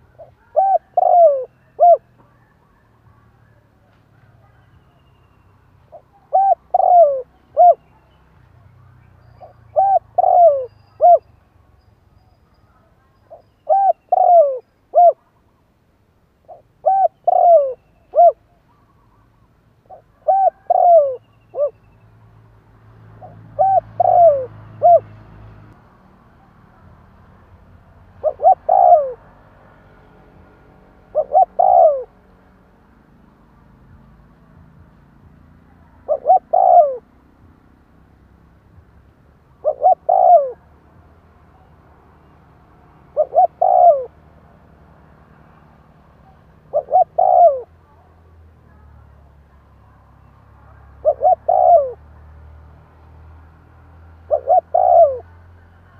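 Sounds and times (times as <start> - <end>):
dove cooing: 0.0 - 4.8, 5.9 - 8.2, 9.4 - 11.3, 12.8 - 15.3, 16.4 - 21.8, 23.2 - 25.2, 28.2 - 29.3, 31.0 - 32.2, 35.8 - 37.1, 39.6 - 40.7, 43.1 - 44.2, 46.2 - 47.8, 50.7 - 52.1, 54.3 - 55.4.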